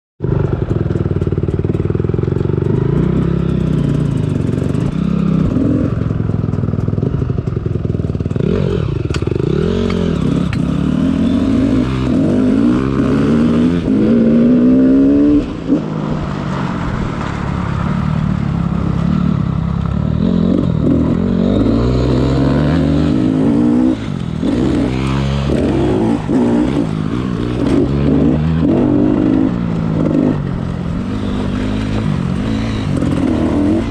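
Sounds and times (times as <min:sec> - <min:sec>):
dirt bike engine revving: 0:07.0 - 0:33.9.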